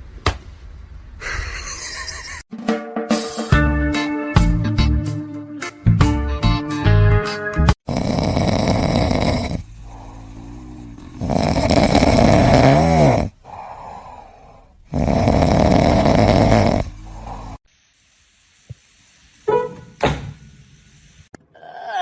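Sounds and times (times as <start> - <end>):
pet snoring loudly: 7.8 - 17.6.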